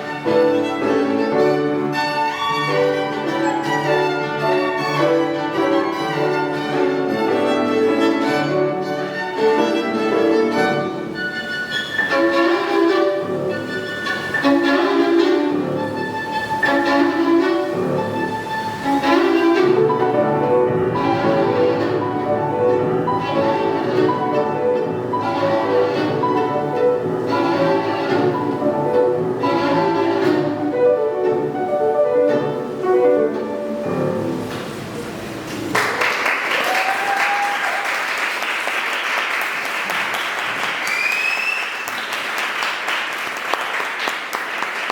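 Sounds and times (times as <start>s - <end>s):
violin: 0.0s - 35.3s
piano accompaniment: 0.0s - 36.6s
audience applause: 35.5s - 44.9s.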